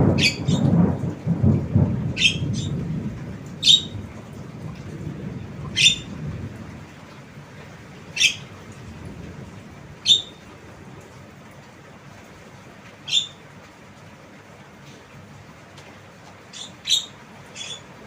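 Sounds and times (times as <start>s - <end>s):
bird giving sharp calls: 0.2s - 0.7s, 2.2s - 2.7s, 3.6s - 4.0s, 5.8s - 6.1s, 8.2s - 8.5s, 10.1s - 10.4s, 13.1s - 13.4s, 16.5s - 17.9s.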